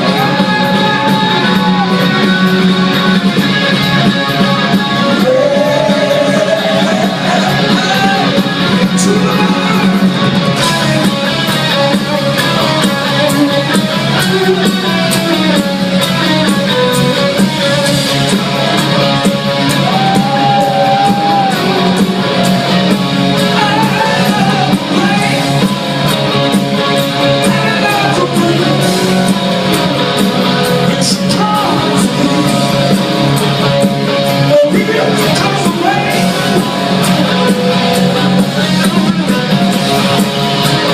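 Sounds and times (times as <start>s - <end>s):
live rock band playing: 0.0s - 40.9s
person singing: 5.0s - 10.9s, 23.4s - 25.6s, 27.4s - 29.3s, 30.7s - 33.2s.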